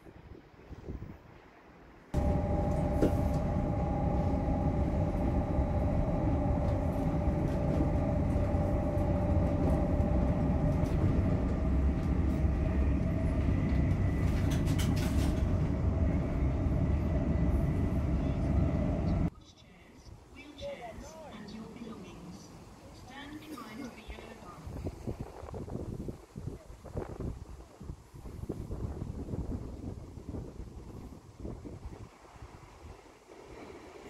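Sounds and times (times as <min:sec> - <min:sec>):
constant whine: 0:02.2 - 0:19.3
train interior rumble: 0:02.2 - 0:19.3.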